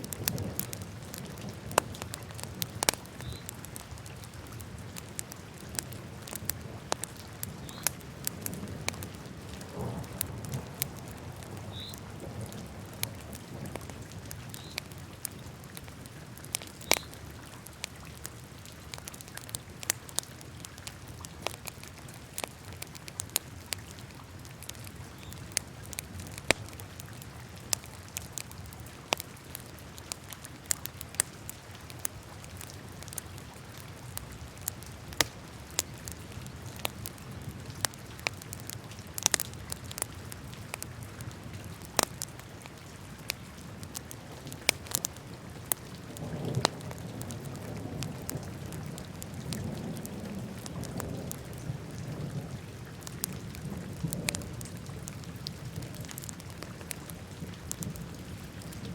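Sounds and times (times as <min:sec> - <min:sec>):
wood fire crackling: 0:00.0 - 0:51.6, 0:52.9 - 0:58.9
low rumble of flames: 0:00.0 - 0:58.9.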